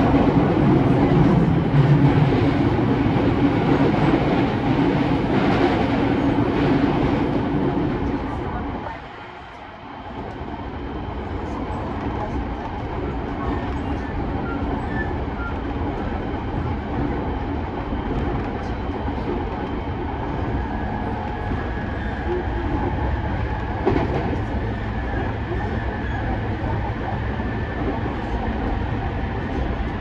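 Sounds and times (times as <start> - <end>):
train running inside carriage: 0.0 - 30.0.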